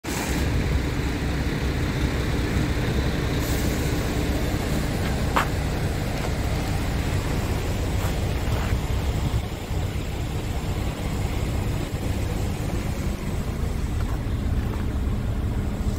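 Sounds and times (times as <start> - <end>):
truck diesel engine rumbling: 0.0 - 15.9.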